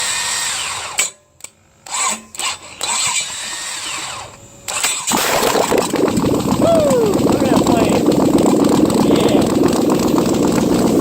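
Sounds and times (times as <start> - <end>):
engine running loudly: 5.1 - 11.0.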